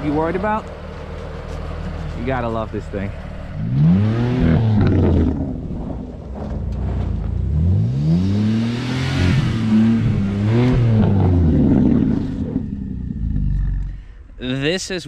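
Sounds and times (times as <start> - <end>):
car engine revving hard: 3.5 - 5.8, 6.7 - 12.9.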